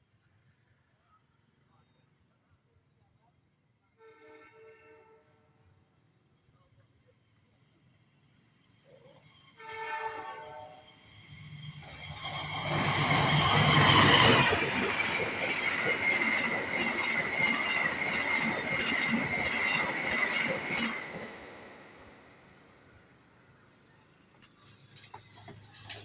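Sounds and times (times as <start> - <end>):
train wheels clacking on rails: 11.2 - 22.4, 24.2 - 26.0
diesel locomotive rumble: 11.6 - 22.8.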